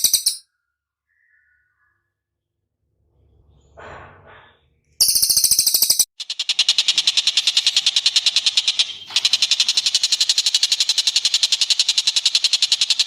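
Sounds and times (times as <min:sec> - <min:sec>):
bird trilling: 0:05.0 - 0:13.0.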